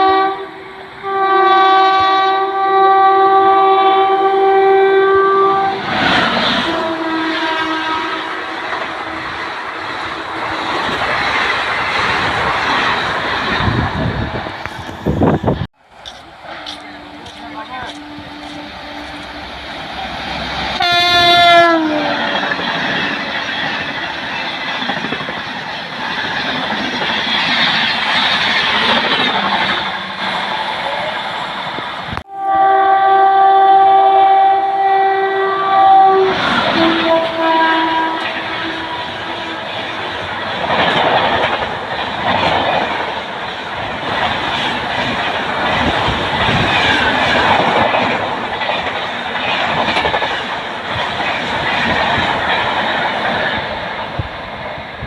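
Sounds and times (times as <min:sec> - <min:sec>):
locomotive horn: 0:00.0 - 0:09.6, 0:16.3 - 0:22.7, 0:32.2 - 0:39.8
train wheel clatter: 0:10.0 - 0:20.8, 0:22.1 - 0:30.9, 0:38.1 - 0:55.0.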